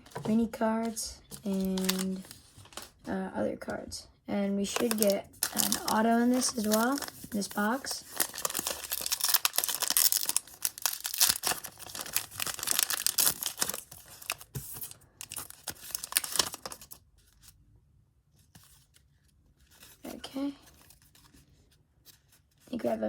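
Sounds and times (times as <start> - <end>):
wrapper tearing and crinkling: 1.5 - 3.0, 4.7 - 17.0.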